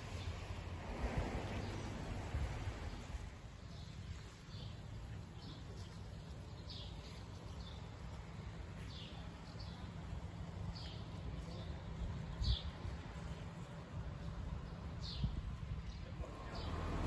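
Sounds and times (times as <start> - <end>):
steady low rumble: 0.0 - 5.5
birds chirping: 0.0 - 17.0.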